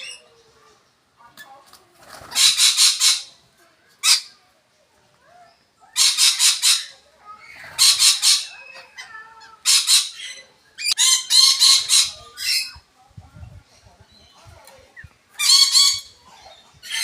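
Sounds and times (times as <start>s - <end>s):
parrots squawking: 2.2s - 3.4s, 4.0s - 4.4s, 5.9s - 12.8s, 15.3s - 17.0s.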